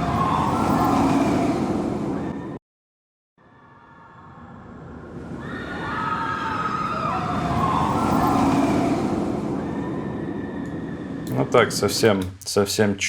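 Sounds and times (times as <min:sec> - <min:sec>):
high whining tones: 0:00.0 - 0:02.6, 0:05.5 - 0:12.2.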